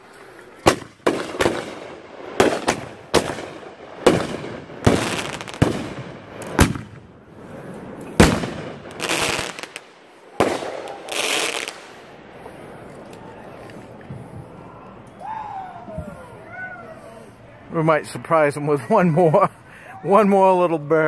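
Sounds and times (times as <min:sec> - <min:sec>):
fireworks bangs with echo: 0:00.6 - 0:07.3, 0:08.1 - 0:12.2.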